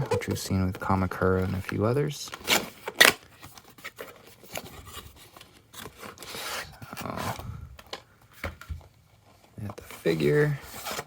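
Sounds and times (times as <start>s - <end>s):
cardboard scraping: 9.8s - 11.0s.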